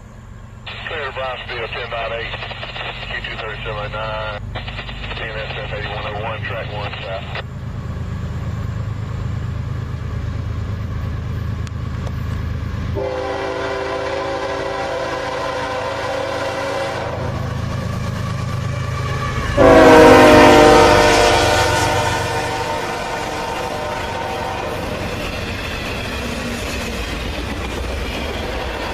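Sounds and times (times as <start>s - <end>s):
diesel train rumble: 0.0s - 28.9s
locomotive air horn: 13.0s - 17.4s, 19.0s - 25.0s.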